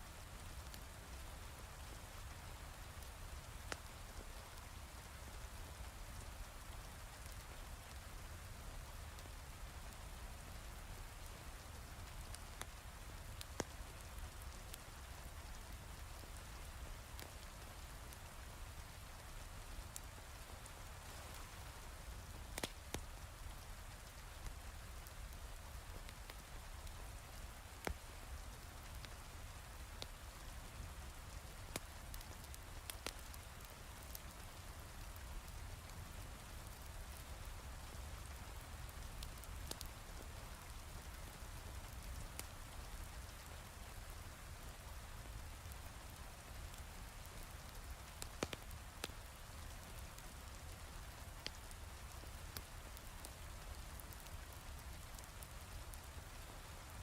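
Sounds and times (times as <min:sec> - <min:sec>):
wood fire popping: 0:12.1 - 0:14.2, 0:17.1 - 0:18.3, 0:22.3 - 0:27.0, 0:31.4 - 0:35.8, 0:38.6 - 0:43.5, 0:47.6 - 0:50.0, 0:50.7 - 0:56.6.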